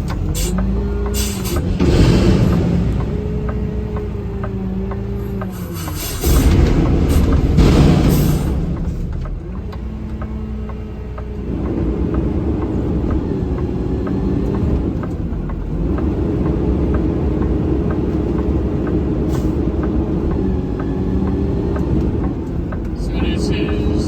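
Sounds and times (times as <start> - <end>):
diesel engine drone: 0.0 - 24.0
light ticking: 9.1 - 24.0.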